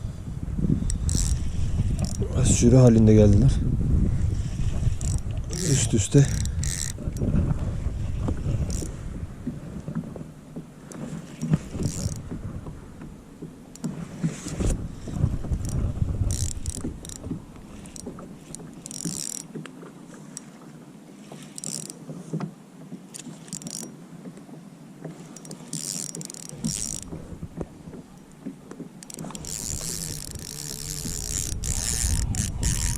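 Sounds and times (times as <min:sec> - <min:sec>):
wind rumble on microphone: 0:00.0 - 0:10.7, 0:11.4 - 0:18.5, 0:26.6 - 0:28.2, 0:29.3 - 0:32.9
handling noise on kayak: 0:00.0 - 0:32.9.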